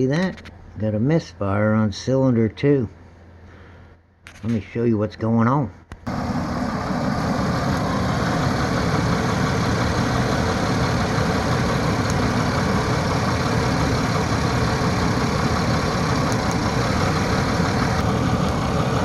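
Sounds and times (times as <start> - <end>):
car engine idling with misfire: 6.1 - 19.0.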